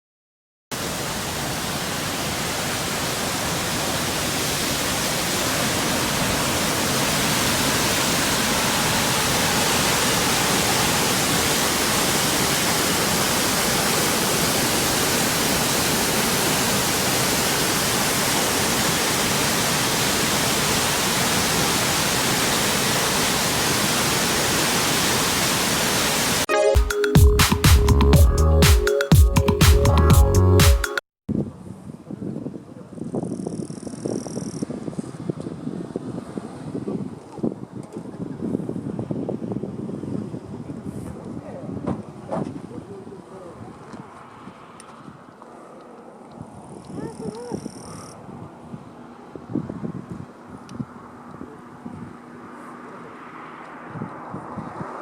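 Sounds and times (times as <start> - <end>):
waterfall rushing: 0.7 - 30.0.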